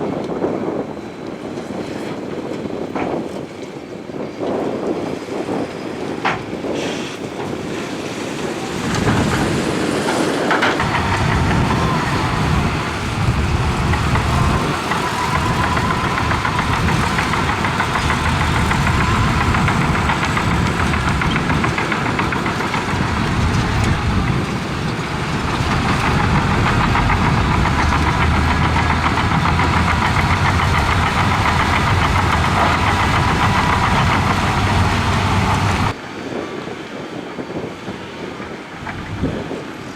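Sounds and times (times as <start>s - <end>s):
diesel engine running under load: 10.7s - 36.0s.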